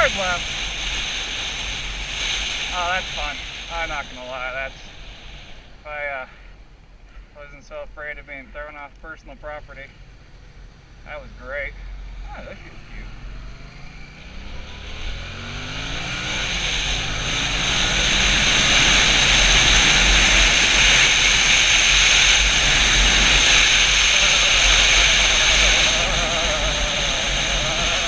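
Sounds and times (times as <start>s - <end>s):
motorcycle engine accelerating: 0.0s - 4.7s, 11.1s - 28.0s
wind rushing over microphone: 0.0s - 5.9s, 12.3s - 28.0s.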